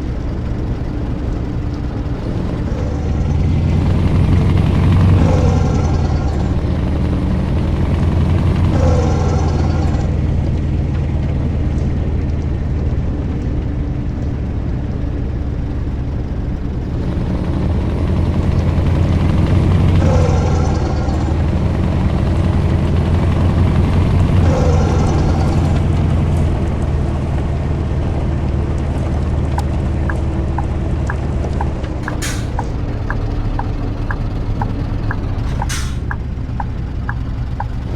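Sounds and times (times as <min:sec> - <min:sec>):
truck diesel engine running: 0:00.0 - 0:10.9, 0:29.8 - 0:37.9.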